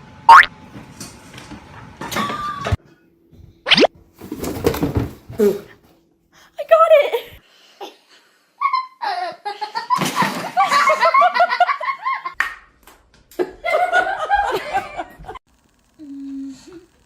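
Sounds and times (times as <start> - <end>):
hearty human laughter: 13.4 - 15.4.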